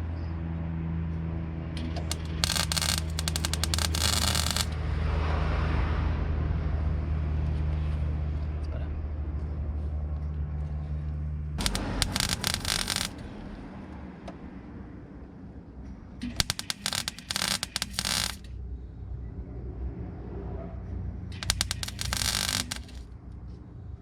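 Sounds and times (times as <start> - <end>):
welding crackle and spit: 2.0 - 4.8, 11.6 - 13.4, 16.4 - 18.4, 21.4 - 23.1.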